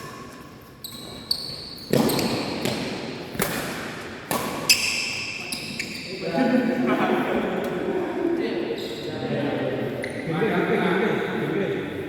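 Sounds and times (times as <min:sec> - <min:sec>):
shoes squeaking on court floor: 0:00.0 - 0:03.0, 0:04.6 - 0:06.3
racket striking shuttlecock: 0:01.9 - 0:05.0.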